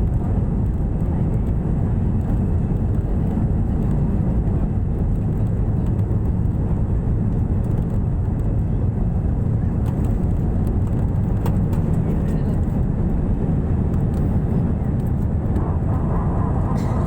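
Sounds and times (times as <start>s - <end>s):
jet engines roaring: 11.2s - 17.0s.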